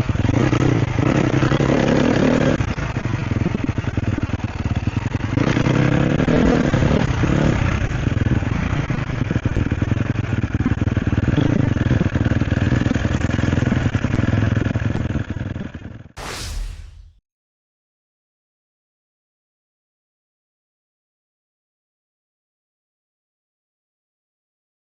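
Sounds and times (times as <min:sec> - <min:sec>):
motorcycle engine revving: 0:00.0 - 0:15.2
brief rushing noise: 0:16.2 - 0:17.2.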